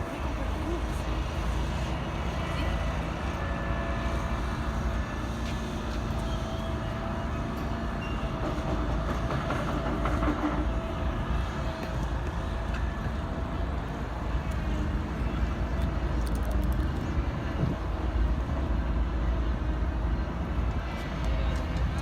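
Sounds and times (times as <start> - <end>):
train rumbling past: 0.0 - 16.2.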